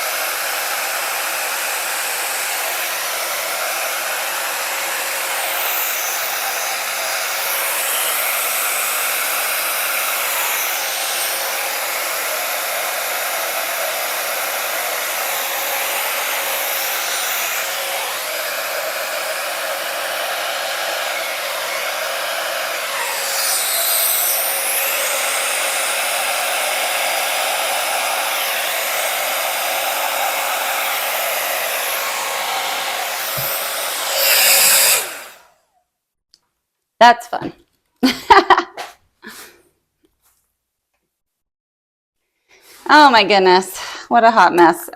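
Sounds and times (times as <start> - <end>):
blow dryer air rushing: 0.0 - 35.6.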